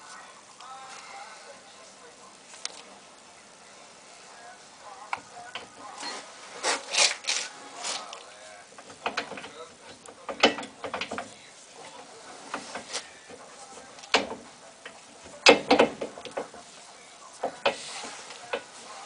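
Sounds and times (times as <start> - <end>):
tools and metal brake parts clicking: 8.8 - 11.3.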